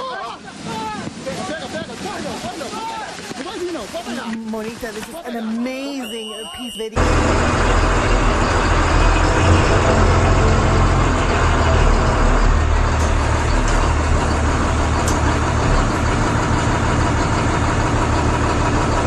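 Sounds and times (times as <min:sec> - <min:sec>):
vehicle engine low rumble: 0:07.0 - 0:19.0.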